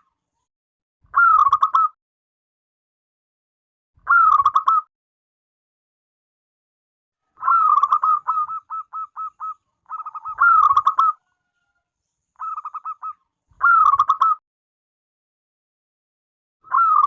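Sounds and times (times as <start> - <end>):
dove cooing: 7.2 - 11.5, 12.4 - 14.4.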